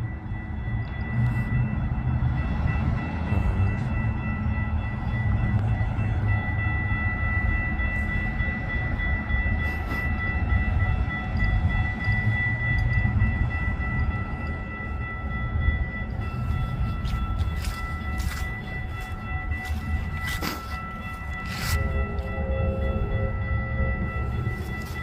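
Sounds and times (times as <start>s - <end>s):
high-pitched whine: 0.0s - 25.0s
train rumbling past: 0.0s - 25.0s.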